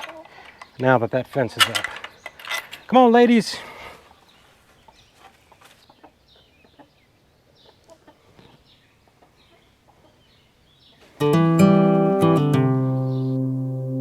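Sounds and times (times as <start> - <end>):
hens clucking: 4.8 - 7.0, 7.6 - 10.3.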